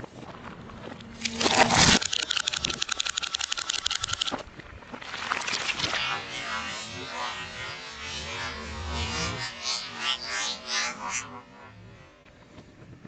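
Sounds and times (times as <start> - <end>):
rapid crackling: 1.1 - 4.4.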